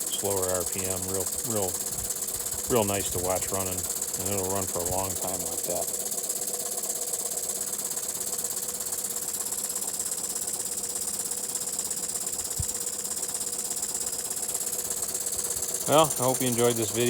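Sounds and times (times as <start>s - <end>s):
toy steam engine chugging: 0.0s - 17.0s
steady steam hiss: 14.7s - 17.0s.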